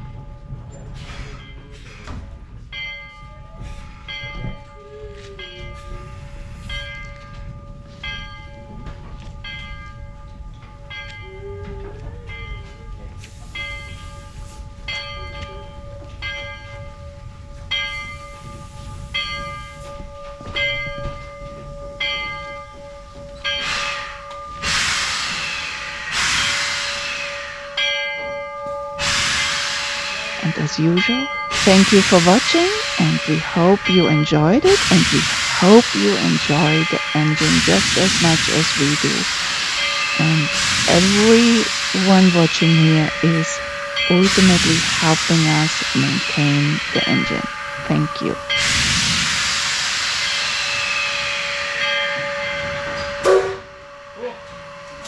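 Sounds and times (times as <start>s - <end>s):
steam locomotive bell ringing: 0.0s - 55.0s
steam hissing: 23.6s - 27.8s, 29.0s - 53.7s.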